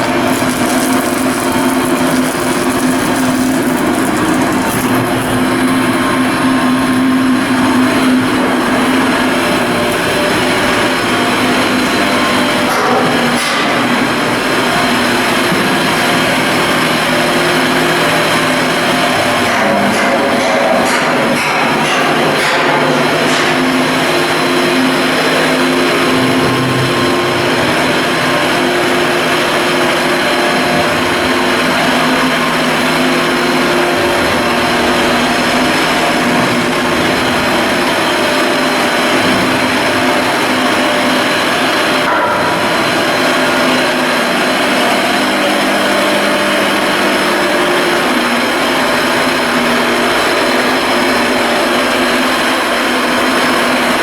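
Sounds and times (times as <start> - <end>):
loud machinery hum: 0.0 - 54.0.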